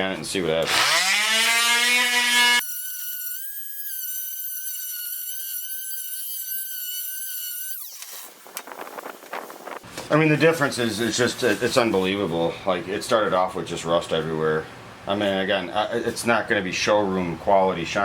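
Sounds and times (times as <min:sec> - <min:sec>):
electric sander whining: 0:00.6 - 0:08.6.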